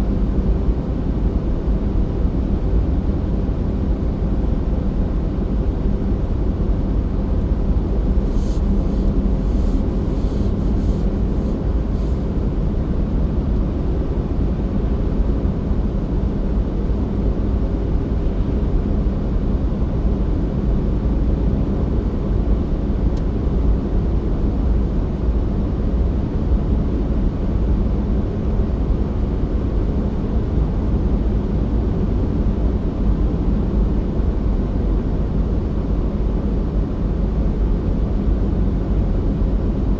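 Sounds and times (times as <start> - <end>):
car interior rumble: 6.2 - 13.0.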